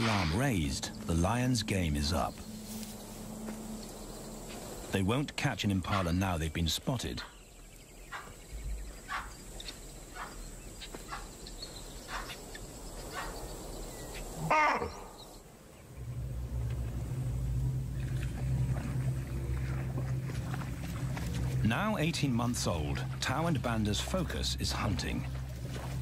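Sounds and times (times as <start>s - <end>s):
steady low hum: 0.0s - 10.7s, 12.7s - 26.0s
wild animal calls: 14.1s - 15.3s
loud wavering animal call: 14.4s - 15.2s.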